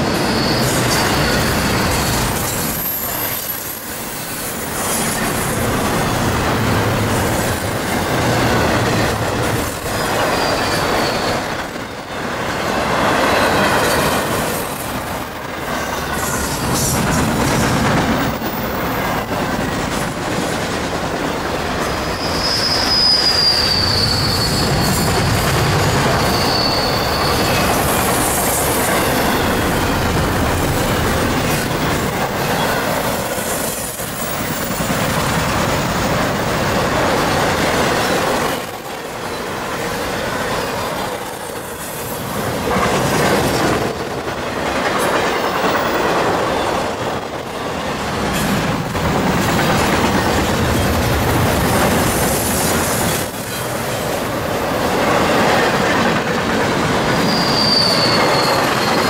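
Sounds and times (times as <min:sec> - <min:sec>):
high wheel squeal: 0:00.0 - 0:06.2, 0:06.8 - 0:12.2, 0:21.8 - 0:30.8, 0:57.1 - 0:59.0
train wheels clacking: 0:00.0 - 0:59.0.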